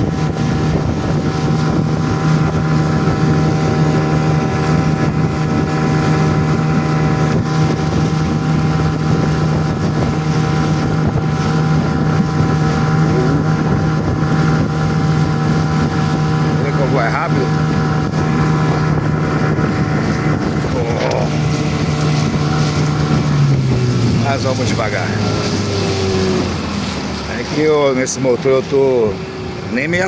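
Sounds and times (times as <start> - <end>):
motorboat engine droning: 0.0 - 30.0
wind buffeting microphone: 0.0 - 30.0.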